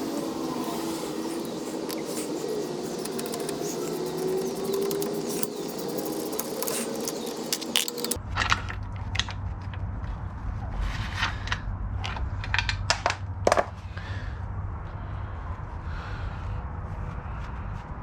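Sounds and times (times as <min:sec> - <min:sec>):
hand tools clicking and clanking: 0:00.0 - 0:09.4
low hum: 0:00.0 - 0:18.0.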